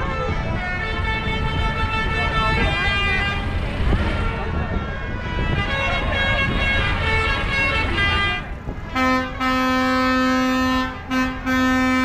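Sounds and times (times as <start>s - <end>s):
low rumble of engines: 0.0s - 12.0s
vehicle horn blast: 5.3s - 12.0s.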